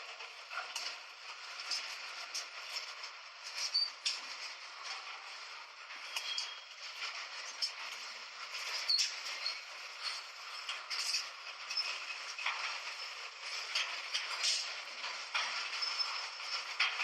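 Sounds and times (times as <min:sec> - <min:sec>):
train carriage creaking and rattling: 0:00.0 - 0:17.0
short squeaks: 0:06.1 - 0:06.7.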